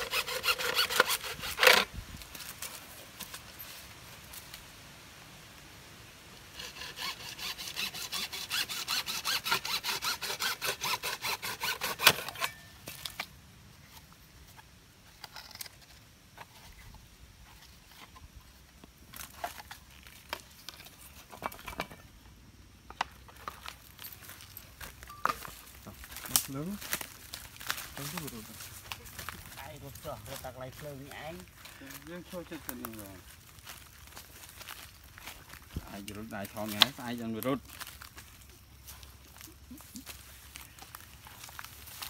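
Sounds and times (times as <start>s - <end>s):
sawing back and forth: 0.0s - 2.0s, 6.3s - 13.2s, 25.8s - 37.4s.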